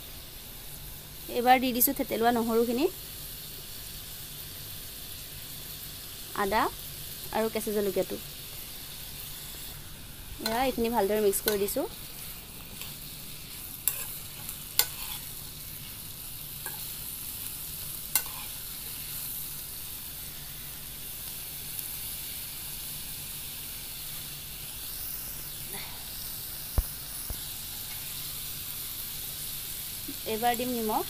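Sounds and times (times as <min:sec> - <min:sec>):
food sizzling in oil: 0:00.0 - 0:31.0
metal spoon clinking on wok: 0:11.4 - 0:11.7, 0:14.8 - 0:15.2.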